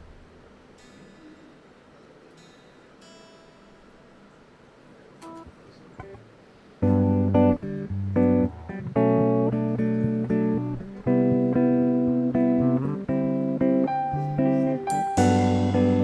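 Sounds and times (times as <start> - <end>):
guitar chords: 6.8 - 16.0
live band playing: 14.8 - 16.0
bass line: 15.2 - 16.0.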